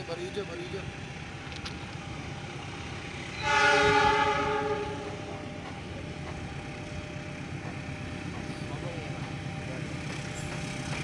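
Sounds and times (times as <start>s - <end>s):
low rumble of train: 0.0s - 11.0s
diesel locomotive horn: 3.3s - 5.6s.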